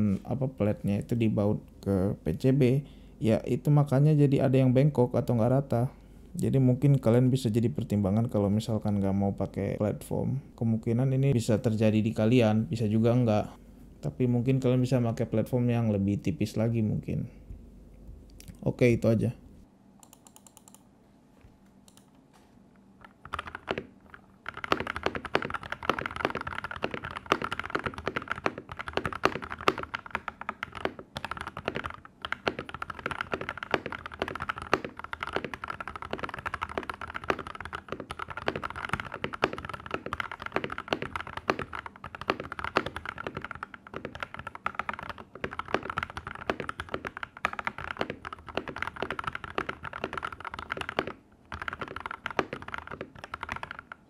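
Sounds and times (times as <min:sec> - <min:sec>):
fast typing on mechanical keyboard: 0:23.0 - 0:54.0.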